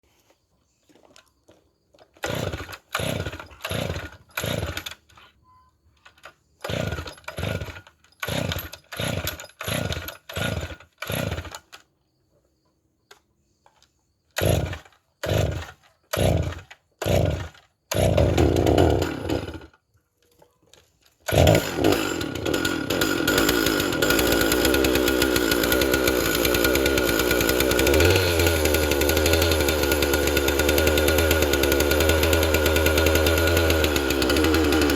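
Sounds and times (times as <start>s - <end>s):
recoil rope pulls: 2.1s - 5.2s, 6.1s - 11.8s, 14.4s - 19.8s, 21.0s - 34.9s
chainsaw engine running: 2.2s - 5.1s, 6.6s - 11.7s, 14.4s - 19.8s, 21.2s - 34.9s.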